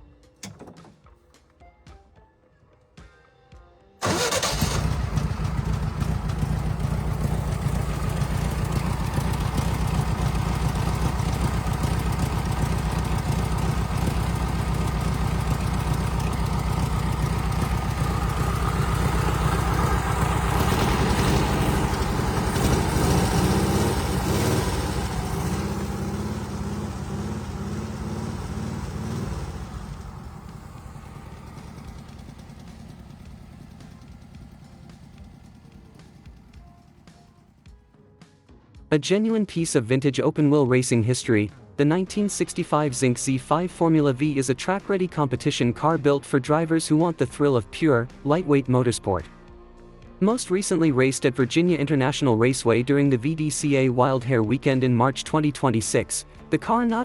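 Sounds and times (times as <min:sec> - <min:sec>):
race car engine running: 0:04.0 - 0:37.5.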